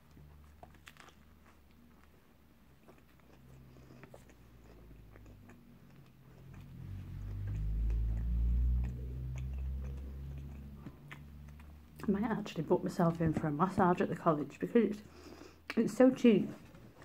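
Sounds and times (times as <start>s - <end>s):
person chewing food: 0.0s - 12.3s
mouth clicks: 5.0s - 12.0s.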